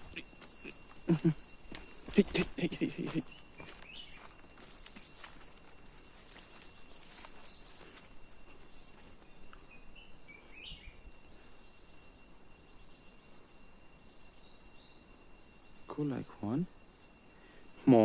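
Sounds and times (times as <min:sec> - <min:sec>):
bird-like chirps: 0:00.0 - 0:05.6, 0:06.4 - 0:11.1
high-pitched insect chorus: 0:00.0 - 0:18.0.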